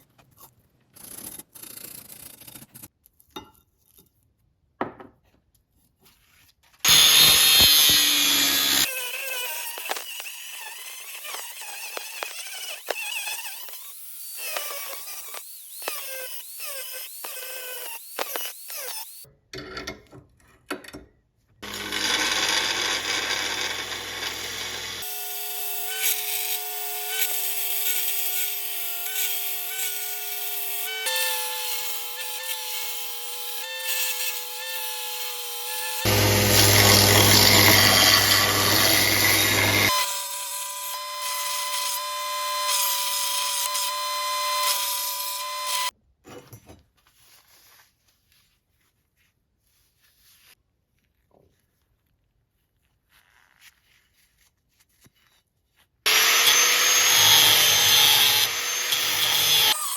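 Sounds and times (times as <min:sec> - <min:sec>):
power tools cutting steel: 0:06.8 - 0:19.3, 0:21.6 - 0:45.9, 0:56.1 - 0:59.9
motor whining: 0:36.0 - 0:40.0.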